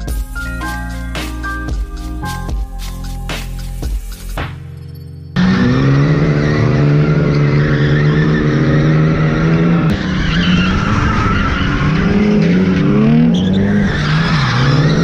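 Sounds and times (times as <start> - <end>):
tyres skidding: 5.3 - 15.0
car engine revving high: 5.4 - 15.0.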